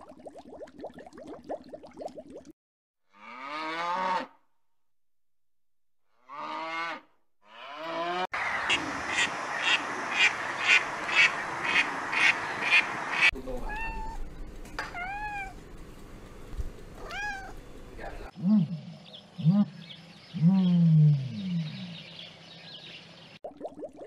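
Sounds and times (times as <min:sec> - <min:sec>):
cat meowing: 0:13.6 - 0:14.2, 0:14.9 - 0:15.6, 0:17.0 - 0:17.6.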